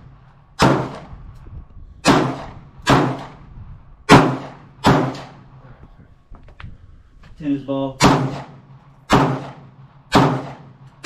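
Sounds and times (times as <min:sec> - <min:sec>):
gunshots with echo: 0:00.6 - 0:01.1, 0:02.0 - 0:03.4, 0:04.1 - 0:05.5, 0:08.0 - 0:10.9.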